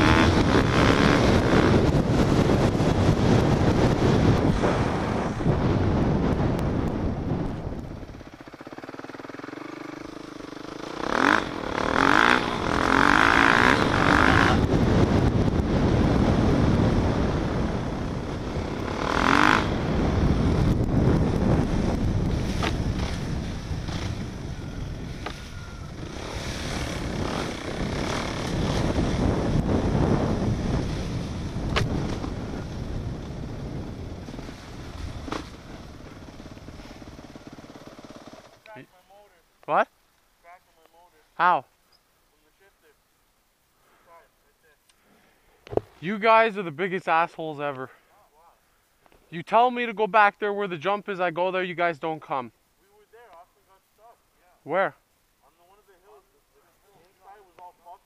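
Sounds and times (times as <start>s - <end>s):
heavy rushing noise: 0.0s - 8.5s, 10.3s - 38.5s
dirt bike engine revving: 0.0s - 38.7s.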